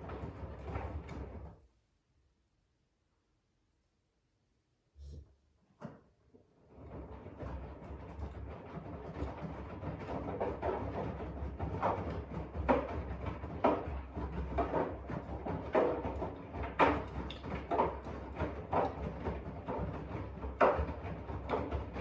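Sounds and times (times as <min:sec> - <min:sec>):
washing machine drum rumbling: 0:06.8 - 0:22.0.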